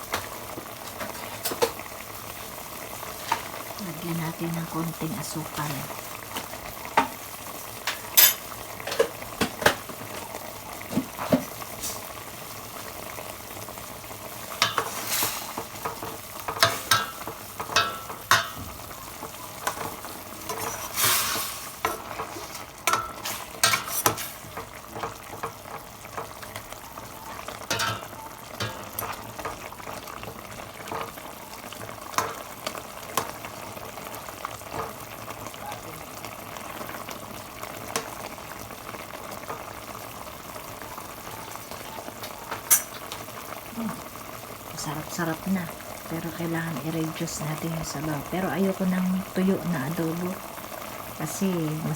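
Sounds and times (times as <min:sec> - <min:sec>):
food sizzling and bubbling in pot: 0:00.0 - 0:51.9
spoon stirring and knocking pot: 0:14.5 - 0:20.9, 0:21.8 - 0:26.6, 0:27.3 - 0:31.2.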